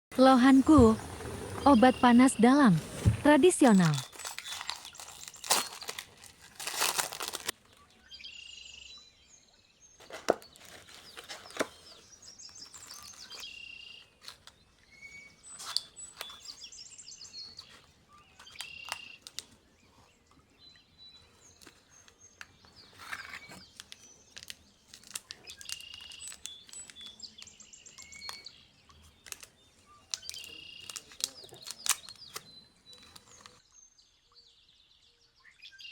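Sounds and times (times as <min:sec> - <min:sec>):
small birds chirping: 0:00.2 - 0:35.9
rustling: 0:00.5 - 0:07.5, 0:21.5 - 0:27.2, 0:30.1 - 0:33.6.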